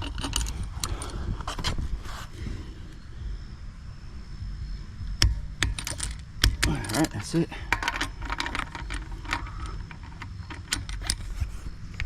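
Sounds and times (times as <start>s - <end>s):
low steady rumble: 0.0s - 12.0s
metal tools clinking: 5.7s - 11.4s.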